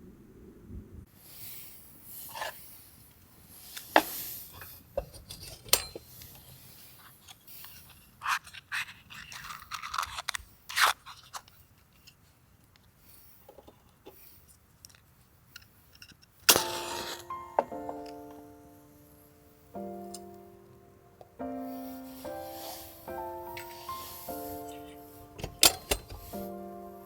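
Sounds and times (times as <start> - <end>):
handling crunches and scrapes: 3.6 - 18.4, 22.0 - 26.6.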